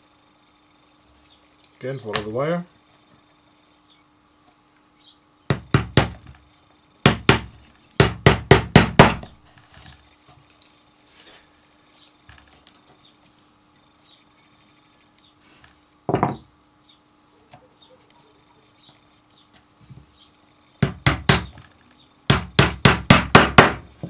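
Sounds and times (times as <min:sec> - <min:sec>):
hammer tapping nails into wood: 0:20.8 - 0:21.6, 0:22.3 - 0:23.8.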